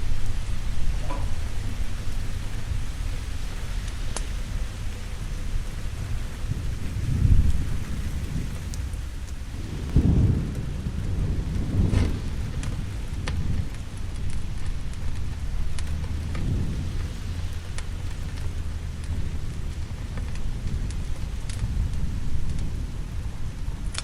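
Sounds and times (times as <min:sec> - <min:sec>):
fire crackling: 0:00.0 - 0:24.0
low thunder rumbling: 0:00.0 - 0:24.0
steady rain: 0:00.0 - 0:24.0.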